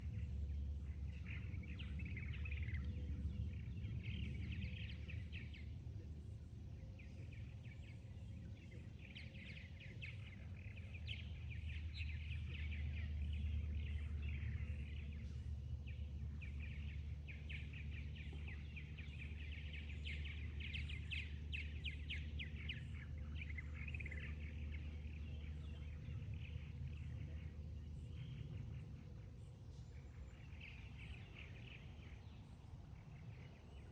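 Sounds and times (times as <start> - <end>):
small birds chirping: 0.0 - 33.9
steady low rumble: 0.0 - 33.9.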